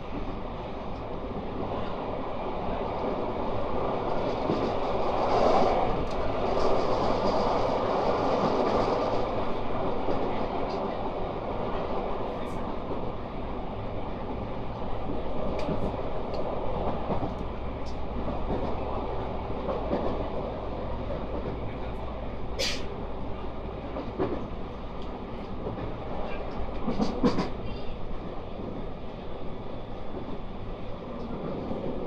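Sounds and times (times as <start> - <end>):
train wheels rumbling on rail: 0.0 - 32.0
short hiss: 22.6 - 22.9.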